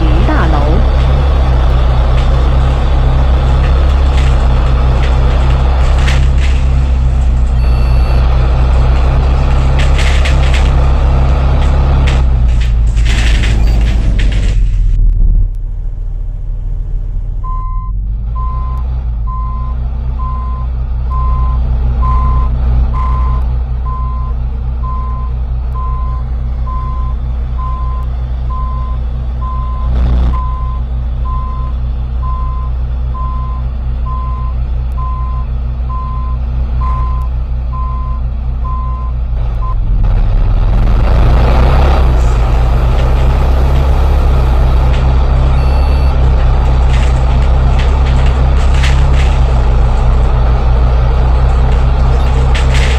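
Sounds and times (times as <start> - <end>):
bus engine idling: 0.0 - 52.9
warning beeper beeping: 7.6 - 8.3, 45.5 - 46.2.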